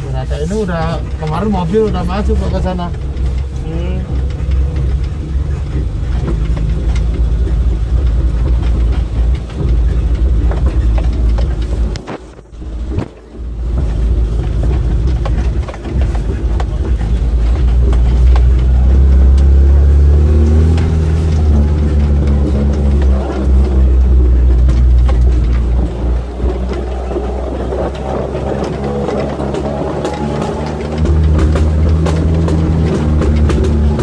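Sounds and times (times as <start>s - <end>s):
off-road car engine: 0.0s - 34.0s
car body knocks and rattles: 0.8s - 34.0s.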